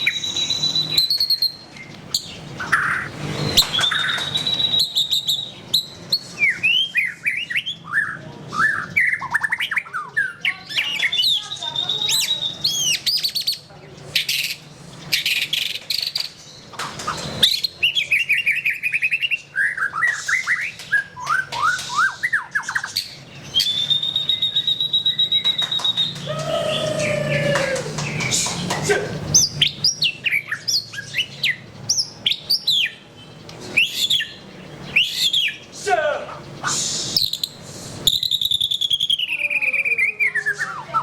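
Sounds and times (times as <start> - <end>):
long steady bird whistle: 0.0 - 1.7, 3.4 - 7.7, 23.5 - 27.7, 36.6 - 40.5
bird singing varied song: 0.0 - 41.0.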